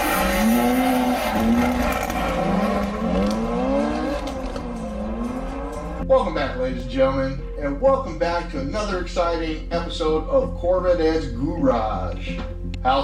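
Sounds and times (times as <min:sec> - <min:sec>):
car engine revving hard: 0:00.0 - 0:06.0.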